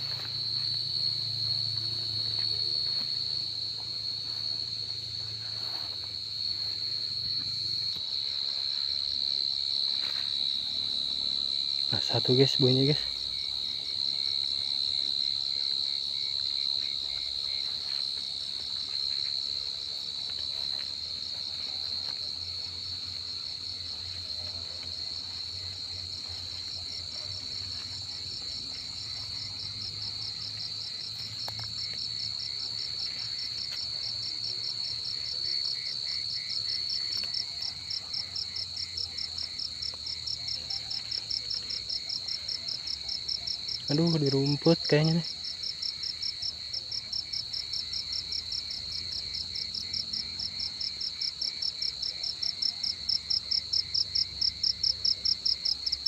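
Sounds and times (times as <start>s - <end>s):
cricket trilling: 0.0s - 56.0s.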